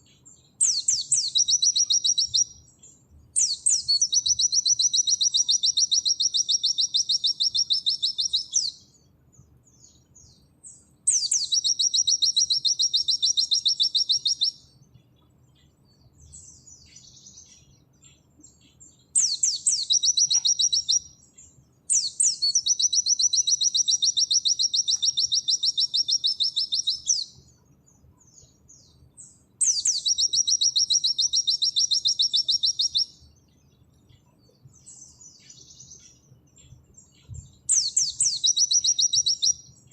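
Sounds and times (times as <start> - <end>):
bird singing fast high trills: 0.0 - 8.9, 10.7 - 14.7, 19.2 - 27.5, 28.4 - 33.2, 37.0 - 39.9.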